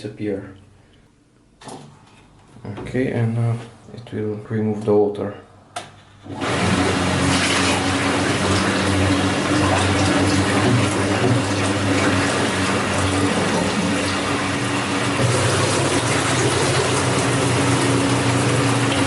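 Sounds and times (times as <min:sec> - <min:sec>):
washing machine drain pump humming: 0:06.0 - 0:19.0
water rushing: 0:06.4 - 0:19.0.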